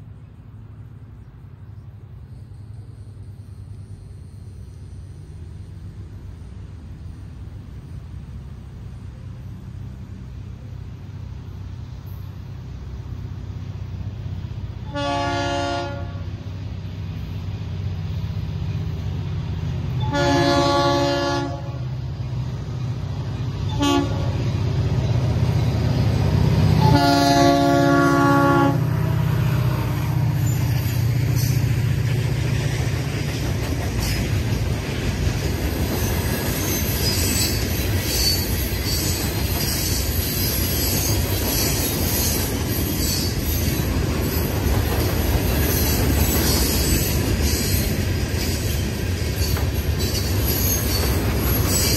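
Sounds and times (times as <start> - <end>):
locomotive horn blasts: 14.8 - 16.4, 20.0 - 21.9, 23.7 - 24.5, 26.8 - 30.4
freight cars clickety-clack: 30.2 - 51.9
wheel squeal: 35.8 - 44.5, 45.5 - 51.9.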